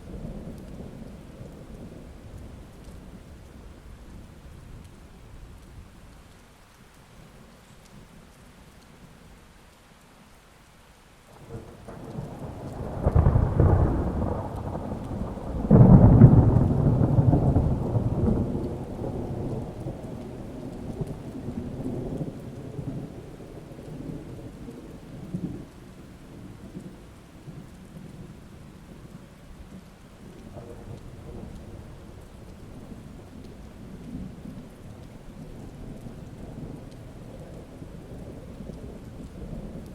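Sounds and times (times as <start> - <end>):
steady rain: 0.0 - 39.9
thunder rumbling: 11.4 - 39.9.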